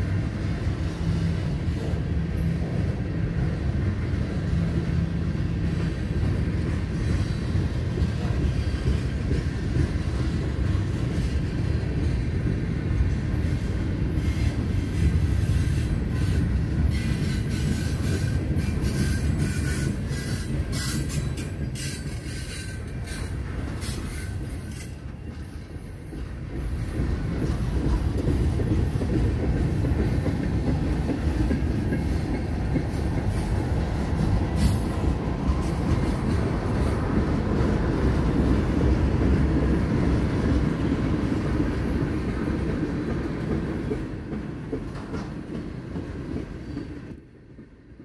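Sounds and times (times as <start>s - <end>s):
train wheels rumbling on rail: 0.0s - 48.0s.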